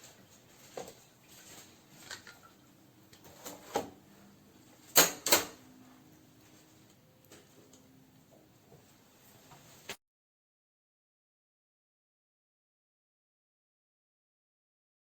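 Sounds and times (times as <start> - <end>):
juicer parts clicking and knocking: 2.0 - 4.0.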